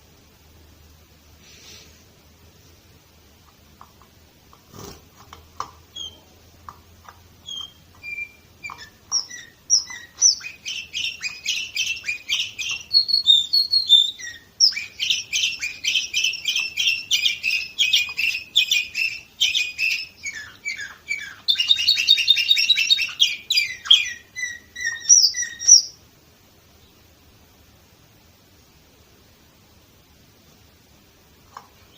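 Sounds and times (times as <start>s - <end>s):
canary singing: 4.7s - 26.0s.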